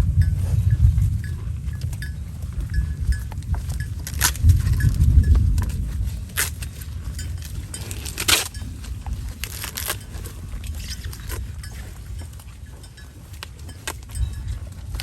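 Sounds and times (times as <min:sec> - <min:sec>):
cow chewing leaves: 0:00.0 - 0:15.0.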